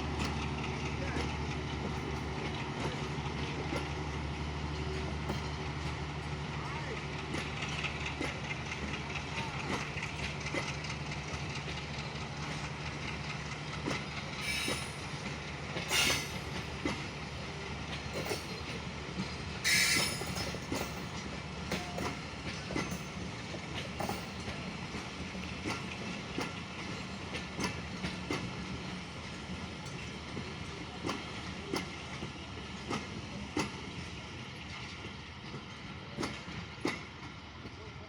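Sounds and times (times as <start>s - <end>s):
train coaches rumbling past: 0.0s - 38.0s
wheels clickety-clack on rails: 0.0s - 38.0s
train screeches: 14.3s - 17.0s, 19.6s - 23.0s.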